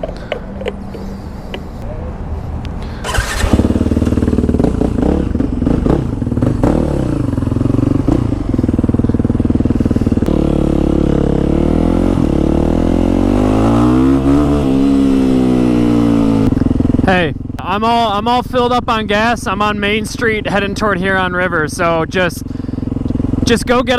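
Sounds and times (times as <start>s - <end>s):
motorcycle engine revving: 2.9s - 23.9s.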